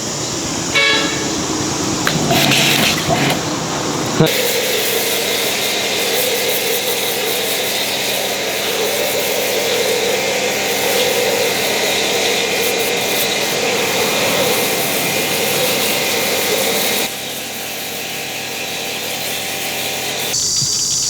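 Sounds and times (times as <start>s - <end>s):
power tool grinding: 0.1s - 20.4s.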